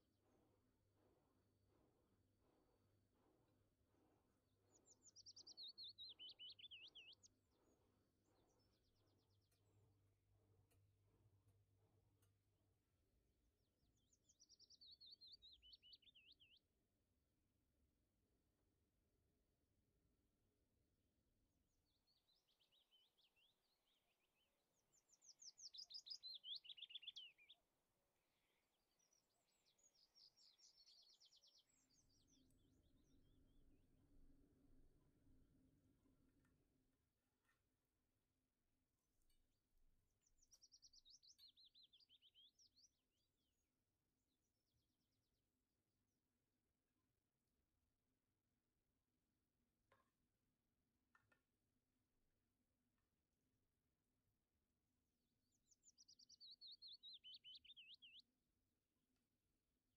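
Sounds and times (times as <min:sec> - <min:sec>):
songbird chirping and trilling: 0:04.7 - 0:10.0, 0:13.8 - 0:16.7, 0:21.8 - 0:27.7, 0:28.3 - 0:33.5, 0:40.1 - 0:43.3, 0:55.4 - 0:58.4.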